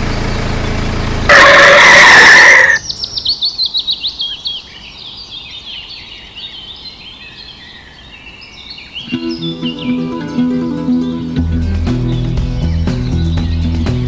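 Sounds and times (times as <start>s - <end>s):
songbirds singing: 0.0s - 14.0s
loud steady tone: 1.3s - 2.8s.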